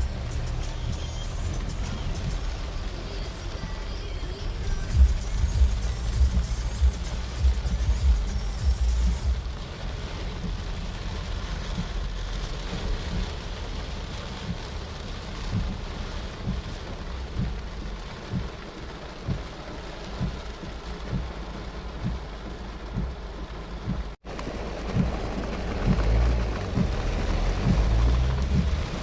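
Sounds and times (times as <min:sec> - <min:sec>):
heavy rain falling: 0:00.0 - 0:29.0
low thumps: 0:04.9 - 0:09.7, 0:19.2 - 0:24.2, 0:24.8 - 0:29.0.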